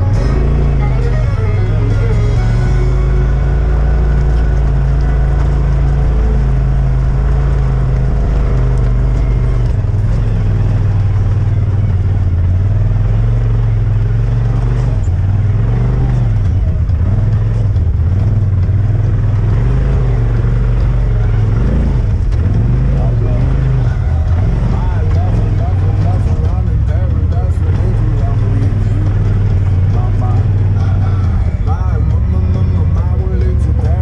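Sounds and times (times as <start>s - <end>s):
utility vehicle engine running: 0.0s - 34.0s.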